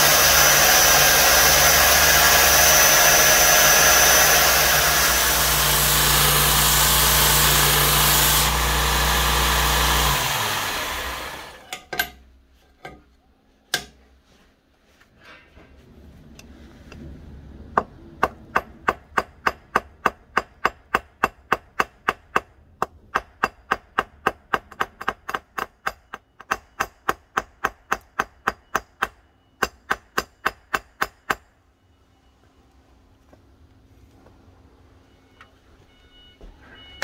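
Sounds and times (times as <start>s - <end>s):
low rumbling noise: 15.2s - 19.0s
hammer tapping on metal: 18.2s - 31.5s.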